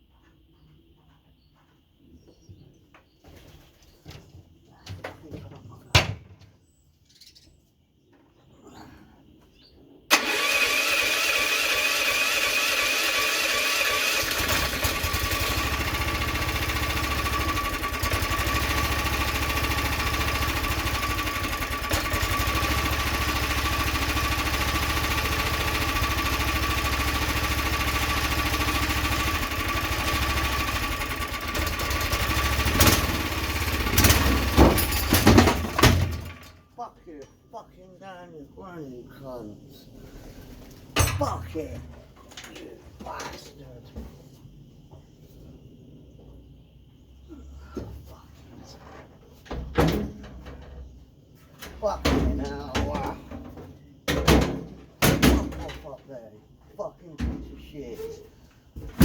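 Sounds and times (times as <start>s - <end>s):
engine starting and running: 10.1s - 36.7s.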